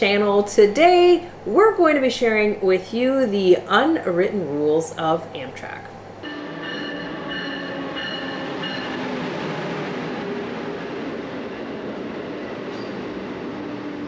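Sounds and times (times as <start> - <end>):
train rumbling on rails: 6.2 - 14.0
high thin squeals: 12.7 - 13.2.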